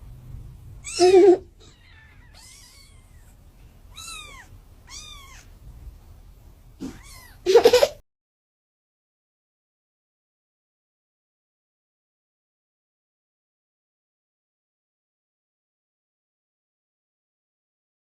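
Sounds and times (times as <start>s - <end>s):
high-pitched kitten mews: 0.8s - 5.5s, 6.8s - 7.4s
cats meowing loudly: 0.8s - 5.6s, 6.8s - 7.4s.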